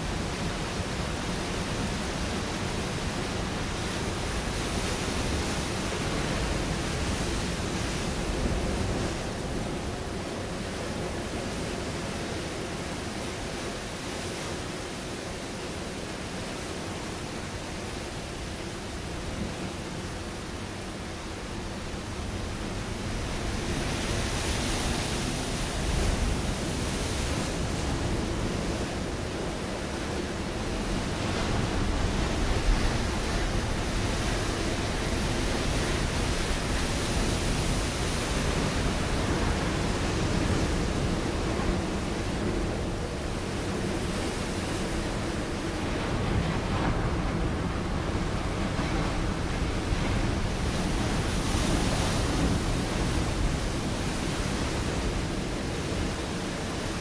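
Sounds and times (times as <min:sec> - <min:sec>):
waves breaking on rocky shore: 0:00.0 - 0:57.0.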